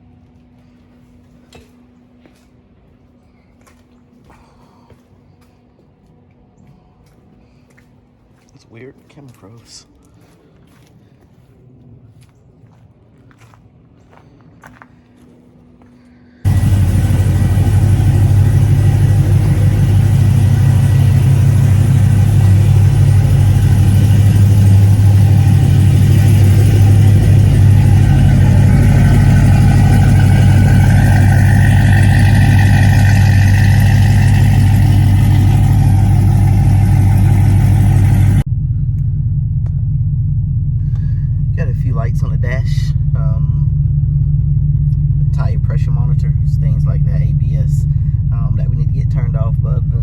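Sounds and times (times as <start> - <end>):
car engine idling: 16.5 - 50.0.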